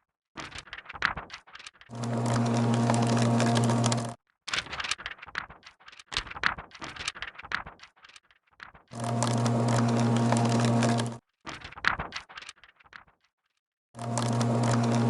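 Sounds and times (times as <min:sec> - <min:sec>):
paper crinkling and rustling: 0:00.4 - 0:13.3, 0:14.0 - 0:15.0
paper shredder motor humming: 0:01.9 - 0:04.2, 0:09.0 - 0:11.2, 0:14.0 - 0:15.0.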